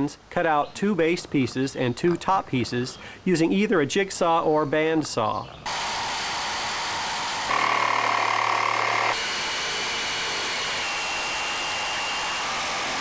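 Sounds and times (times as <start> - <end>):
electric power saw cutting wood: 5.7 - 13.0.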